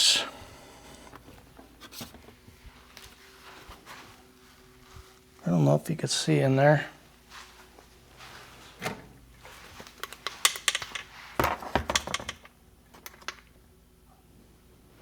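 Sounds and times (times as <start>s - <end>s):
metal parts clicking and knocking: 10.0s - 13.5s.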